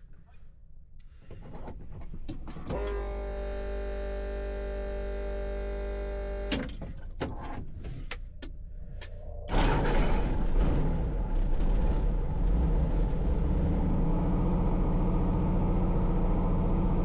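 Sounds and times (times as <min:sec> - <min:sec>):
loud rushing rumble: 0:09.1 - 0:14.0.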